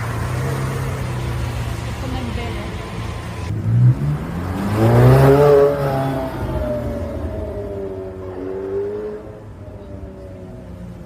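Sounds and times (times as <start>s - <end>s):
sports car engine revving: 3.4s - 9.6s.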